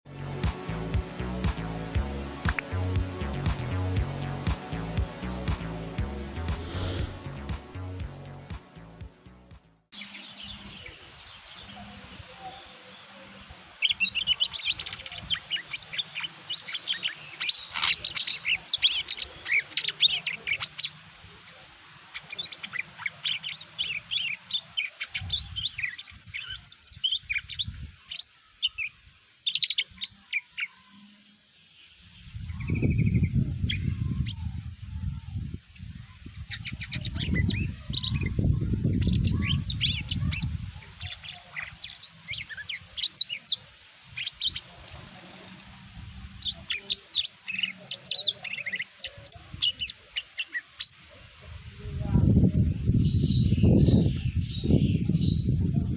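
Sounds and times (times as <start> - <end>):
low rumble: 2.9 - 8.2
bird singing chirps and whistles: 13.8 - 21.0, 22.2 - 28.9, 36.4 - 43.6.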